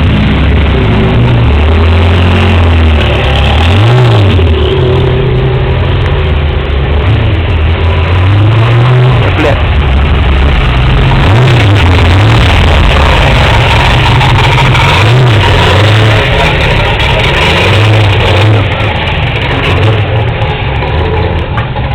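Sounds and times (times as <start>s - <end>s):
car engine idling and revving: 0.0s - 21.9s.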